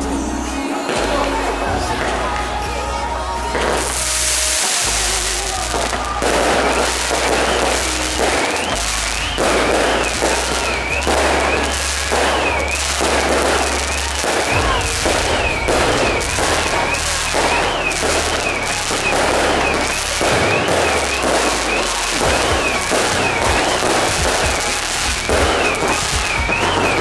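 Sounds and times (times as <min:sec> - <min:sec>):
fireworks crackling and fizzing: 0:00.0 - 0:27.0
high firework whistle: 0:03.4 - 0:27.0.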